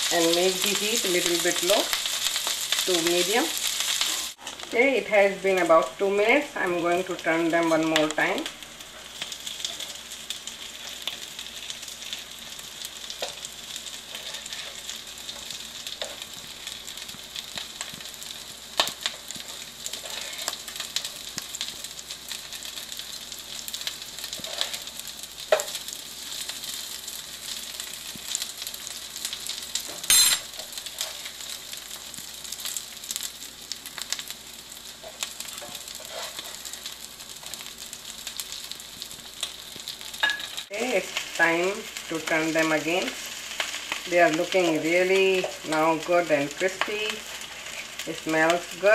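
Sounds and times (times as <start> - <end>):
patties sizzling in oil: 0.0 - 48.9
spatula scraping and knocking pan: 14.1 - 16.5, 19.0 - 20.7, 35.0 - 36.8.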